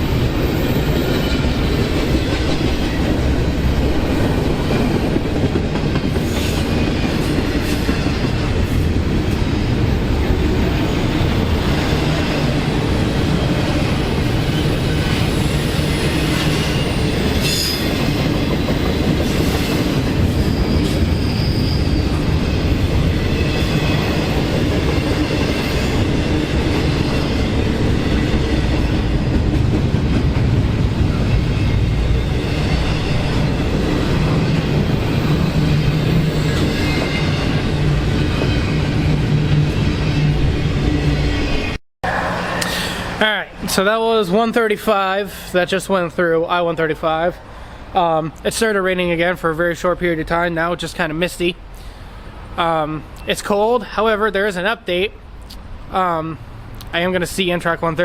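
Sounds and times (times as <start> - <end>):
high wheel squeals: 0.0 - 2.5, 10.8 - 29.1.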